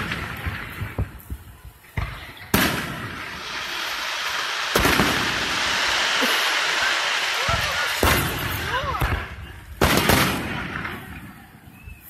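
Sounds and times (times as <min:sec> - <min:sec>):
fireworks booming: 0:00.0 - 0:12.0
small fireworks pops: 0:00.0 - 0:12.0
steady hiss: 0:00.6 - 0:08.8.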